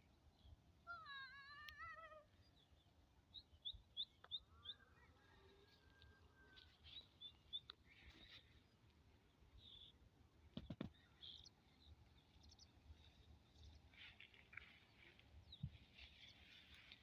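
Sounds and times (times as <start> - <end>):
small bird chirping: 10.6 - 12.8.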